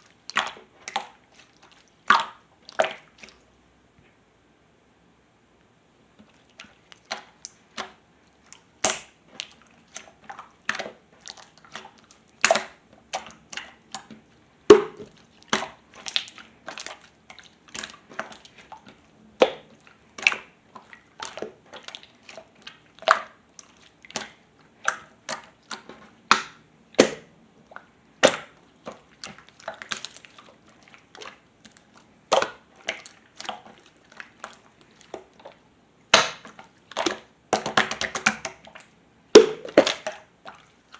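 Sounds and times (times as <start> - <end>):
slime popping and clicking by hand: 8.8 - 9.2, 14.7 - 16.8, 24.1 - 27.3, 36.1 - 38.6.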